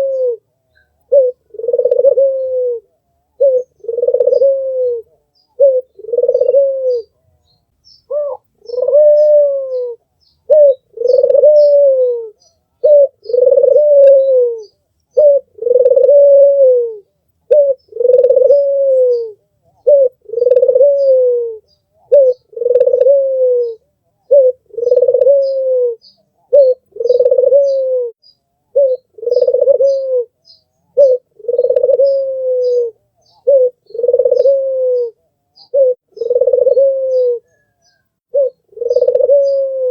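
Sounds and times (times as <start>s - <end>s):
dove cooing: 0.0s - 7.3s, 8.1s - 39.9s
small birds chirping: 0.0s - 16.4s, 17.0s - 39.9s.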